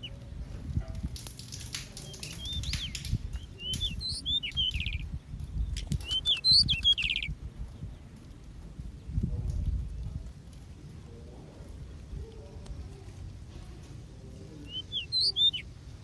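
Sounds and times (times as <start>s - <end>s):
light clicks: 1.0s - 7.3s
wing flutters: 1.0s - 7.4s
finches chirping and trilling: 2.0s - 7.3s, 14.7s - 15.8s.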